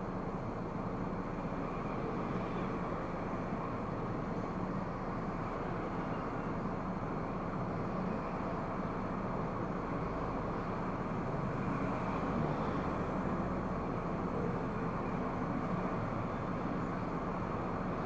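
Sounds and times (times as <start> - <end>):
car engine and road noise: 6.5 - 18.0.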